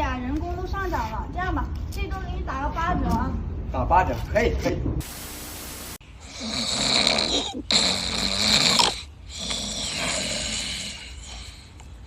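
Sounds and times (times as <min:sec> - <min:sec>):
man snoring heavily: 0:06.2 - 0:11.4.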